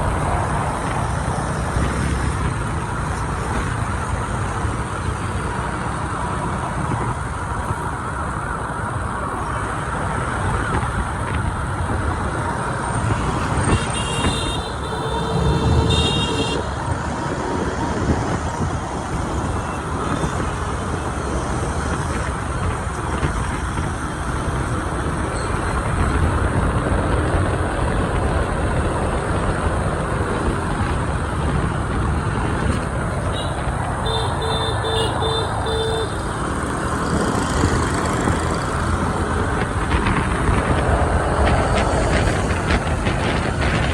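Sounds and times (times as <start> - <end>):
motorbike engines: 0.0 - 43.9
road noise: 0.0 - 43.9
horns beeping: 13.0 - 16.8, 33.2 - 39.7.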